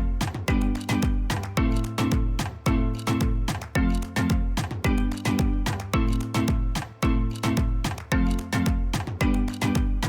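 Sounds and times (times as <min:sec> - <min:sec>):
upbeat music with bass hits: 0:00.0 - 0:10.0.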